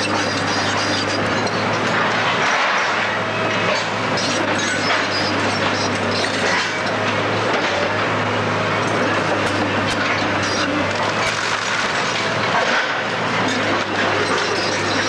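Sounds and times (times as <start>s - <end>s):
debris crunching and cracking: 11.0s - 12.9s.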